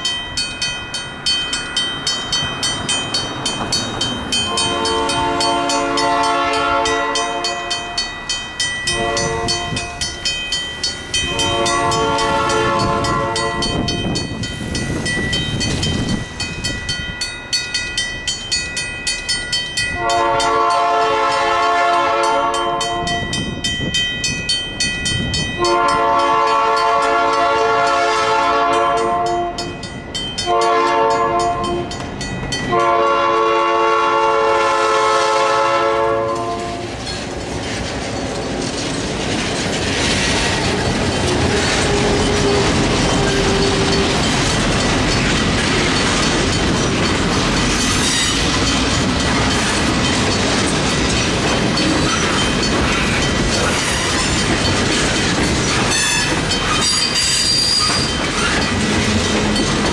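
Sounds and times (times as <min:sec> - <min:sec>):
wheels clicking over rail joints: 0:00.0 - 0:32.8, 0:36.2 - 0:59.9
railroad crossing bell ringing: 0:00.0 - 0:59.9
locomotive horn blasts: 0:04.4 - 0:08.1, 0:08.9 - 0:10.0, 0:11.2 - 0:14.0, 0:19.9 - 0:23.4, 0:25.6 - 0:29.7, 0:30.4 - 0:32.0, 0:32.7 - 0:36.8, 0:41.4 - 0:44.1, 0:55.9 - 0:56.4
locomotive engine rumble: 0:23.0 - 0:59.9.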